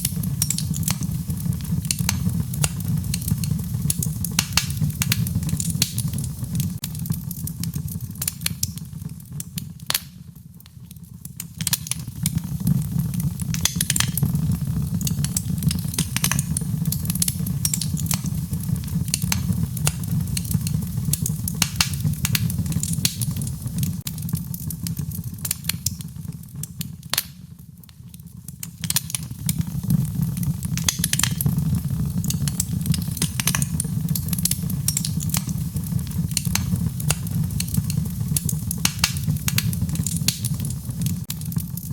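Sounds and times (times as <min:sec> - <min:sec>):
wood fire crackling and popping: 0:00.0 - 0:41.9
rain: 0:28.7 - 0:41.9.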